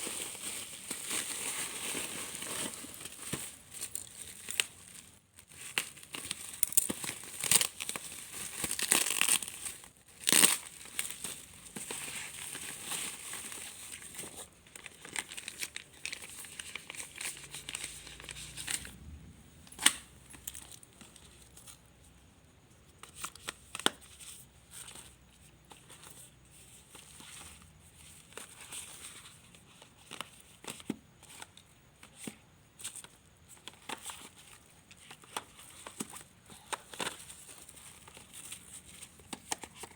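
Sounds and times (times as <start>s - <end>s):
packaging crinkling and tearing: 0.0s - 19.0s
packaging rustling: 0.0s - 19.0s.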